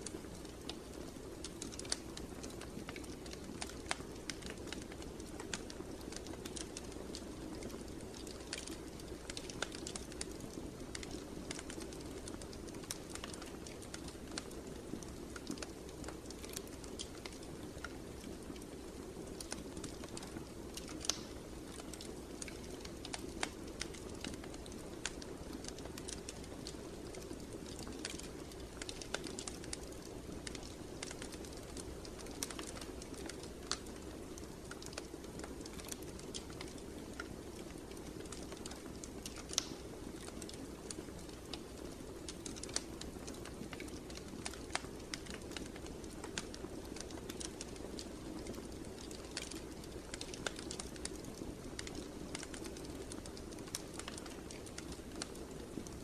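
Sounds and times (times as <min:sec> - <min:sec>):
fireplace fire crackling: 0:00.0 - 0:56.0.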